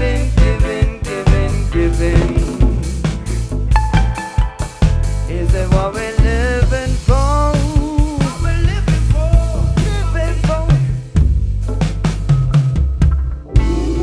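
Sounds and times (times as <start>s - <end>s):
bending melody line: 0.0s - 7.4s
deep bass line: 0.0s - 14.0s
drum kit beat: 0.0s - 14.0s.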